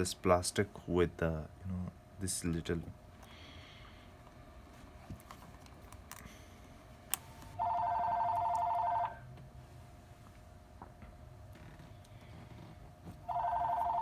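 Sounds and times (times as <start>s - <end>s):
electronic telephone ring: 7.6s - 9.2s, 13.2s - 14.0s.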